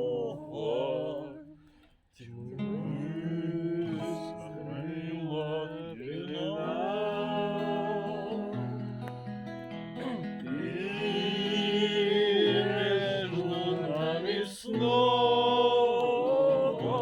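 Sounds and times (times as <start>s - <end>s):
wordless vocal melody: 0.0s - 17.0s
acoustic guitar playing: 6.5s - 17.0s.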